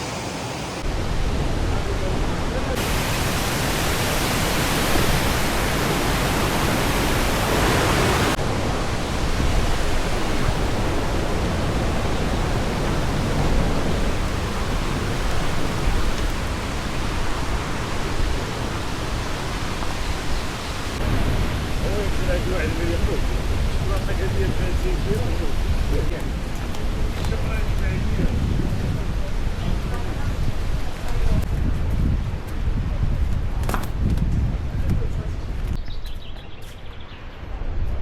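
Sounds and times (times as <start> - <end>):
waterfall rushing water: 0.0 - 27.7.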